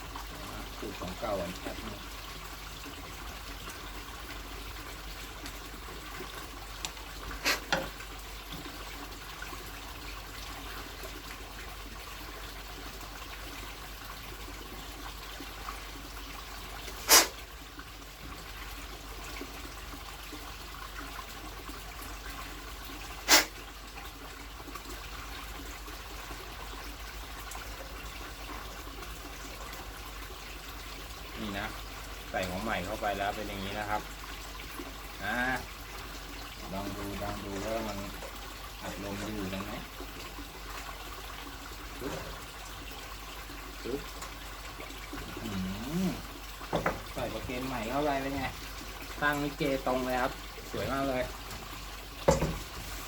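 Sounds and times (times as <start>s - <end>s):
steady hiss: 17.0s - 17.4s, 23.3s - 23.5s.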